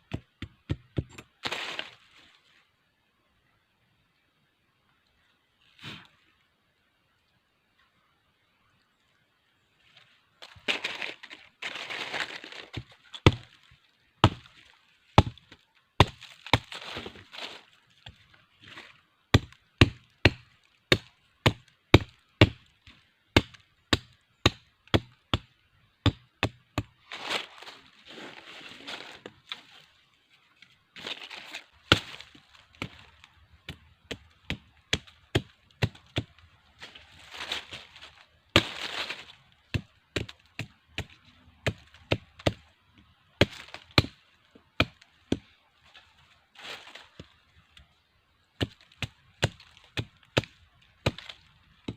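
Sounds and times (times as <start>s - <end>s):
rustling of sticks: 1.1s - 2.8s, 9.7s - 20.8s, 26.5s - 42.7s, 43.4s - 51.9s
blade chopping wood: 10.5s - 11.1s, 11.7s - 13.6s, 14.2s - 14.5s, 15.2s - 17.5s, 19.3s - 27.0s, 31.1s - 36.4s, 38.6s - 42.6s, 43.4s - 44.2s, 48.6s - 51.9s.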